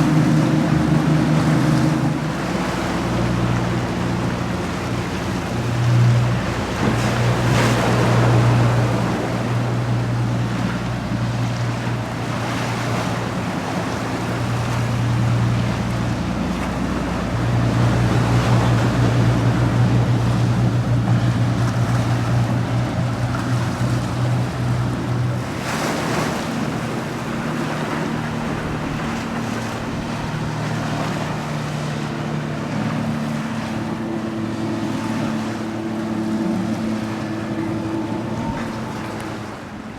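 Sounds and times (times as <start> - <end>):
motorboat engines droning: 0.0 - 39.9
wind: 0.0 - 39.9.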